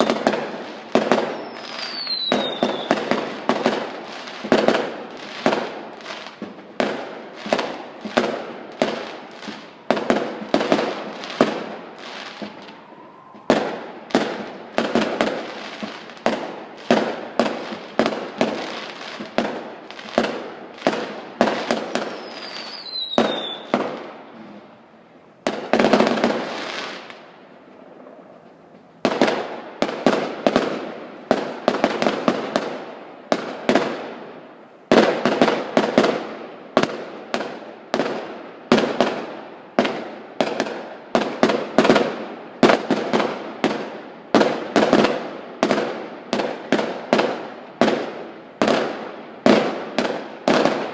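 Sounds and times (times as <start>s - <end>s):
fireworks banging: 0.0s - 24.8s, 25.4s - 50.9s.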